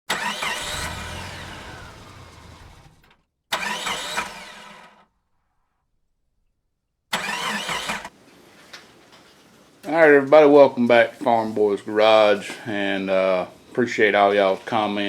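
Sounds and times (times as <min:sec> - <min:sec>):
engine-like revving bursts: 0:00.1 - 0:05.0, 0:07.2 - 0:08.1.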